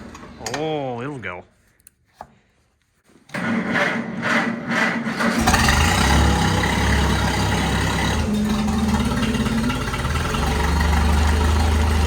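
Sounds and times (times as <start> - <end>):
starter motor cranking: 5.0 - 12.0
tractor engine running: 5.1 - 12.0.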